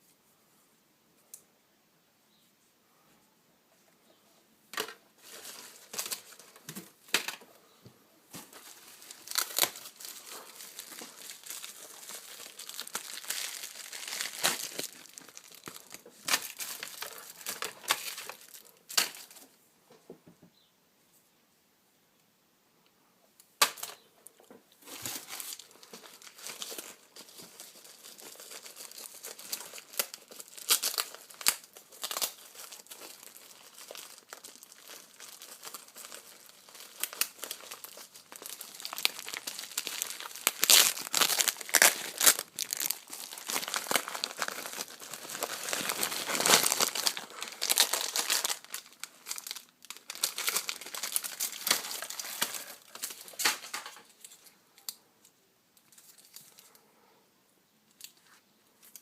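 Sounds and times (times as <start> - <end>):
packaging crinkling and tearing: 4.8 - 7.4, 8.3 - 19.4, 24.8 - 54.4.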